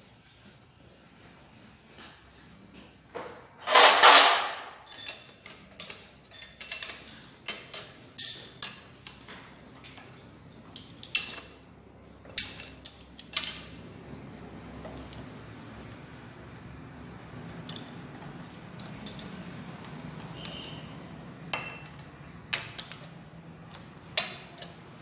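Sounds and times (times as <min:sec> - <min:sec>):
metal parts rattling scrape: 0:03.6 - 0:08.8
clinks of nuts and bolts: 0:03.6 - 0:09.2, 0:12.3 - 0:13.8, 0:17.7 - 0:19.4, 0:21.6 - 0:24.8.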